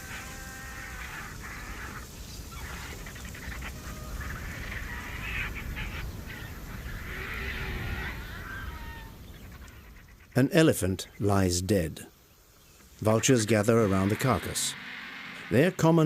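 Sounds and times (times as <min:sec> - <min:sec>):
harsh animal cries: 0:00.0 - 0:06.0, 0:06.9 - 0:09.2, 0:13.4 - 0:15.8.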